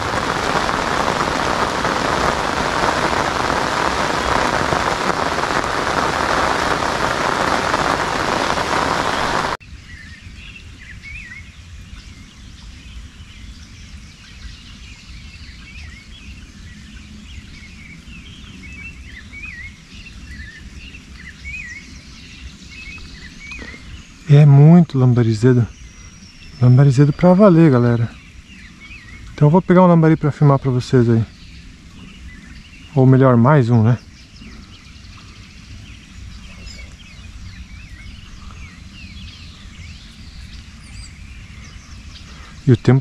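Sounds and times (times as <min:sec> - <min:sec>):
heavy rain: 0:00.0 - 0:09.6
small birds chirping: 0:00.0 - 0:43.0.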